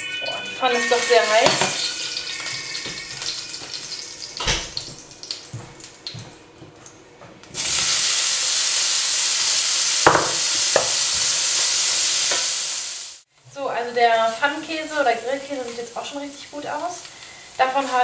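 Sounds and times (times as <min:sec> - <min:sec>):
cheese sizzling in frying pan: 0:00.5 - 0:05.6, 0:07.5 - 0:18.0.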